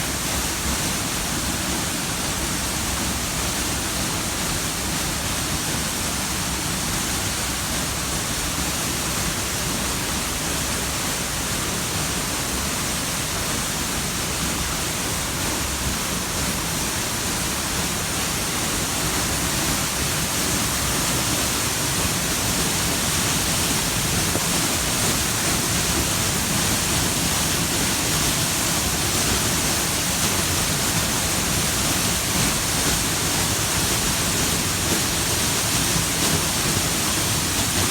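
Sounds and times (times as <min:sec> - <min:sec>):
water rushing: 0:00.0 - 0:37.9.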